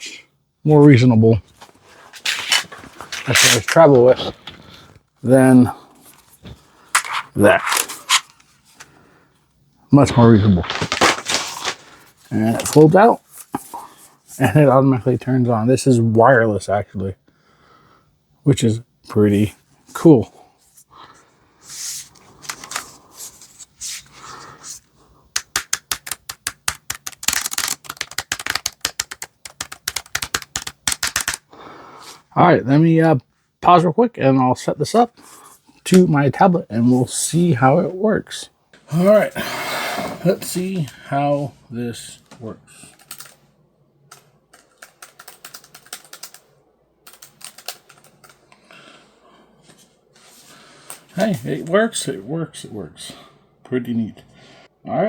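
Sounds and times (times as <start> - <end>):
handling noises: 1.4 - 5.1, 5.9 - 9.0, 10.0 - 13.9
keyboard keys clicking: 25.4 - 31.4, 44.1 - 46.4, 47.0 - 48.4.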